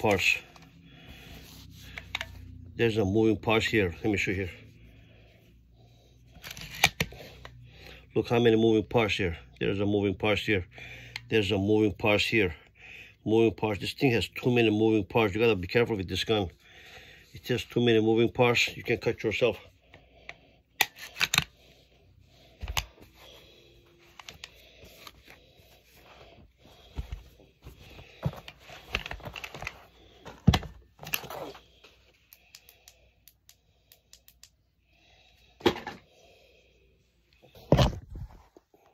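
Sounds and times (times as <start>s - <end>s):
metallic clicks of pistol parts: 6.3s - 7.6s, 20.8s - 21.6s.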